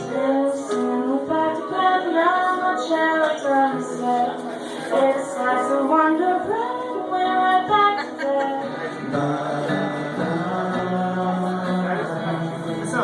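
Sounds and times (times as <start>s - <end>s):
person singing: 0.0s - 13.0s.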